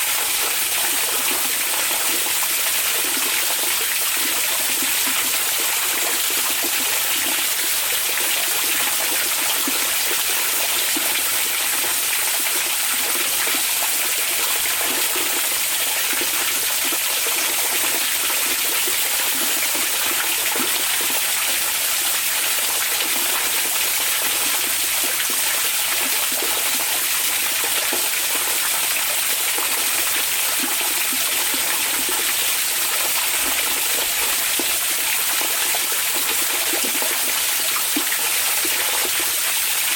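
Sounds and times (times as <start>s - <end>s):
water flowing: 0.0s - 39.9s.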